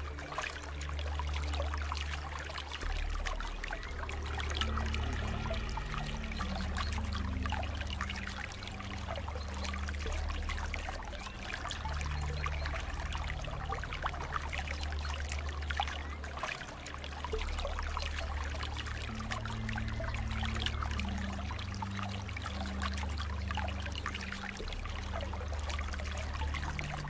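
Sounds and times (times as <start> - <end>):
low rumble: 0.0 - 16.9
water splashing and trickling: 0.0 - 27.0.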